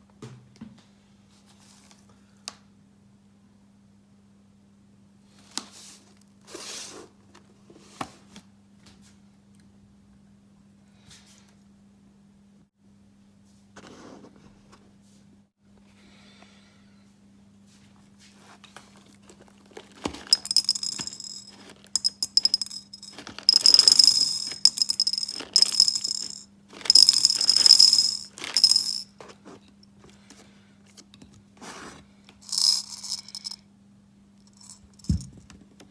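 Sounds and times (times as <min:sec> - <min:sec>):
hard pieces rattling in container: 0:20.0 - 0:29.0, 0:32.4 - 0:33.6.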